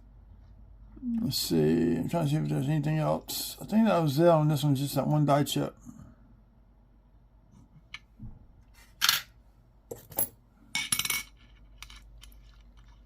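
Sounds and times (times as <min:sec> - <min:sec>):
coins clinking: 0:09.9 - 0:12.5.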